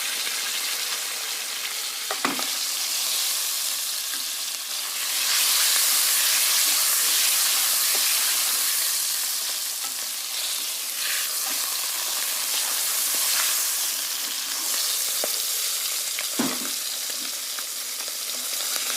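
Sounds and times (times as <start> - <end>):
food sizzling in hot oil: 0.0 - 18.9
stirring in a pan: 5.1 - 15.4.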